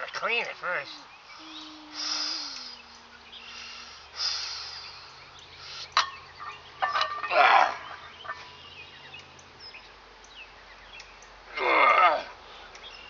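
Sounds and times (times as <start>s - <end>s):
man breathing forcefully: 1.9s - 6.0s.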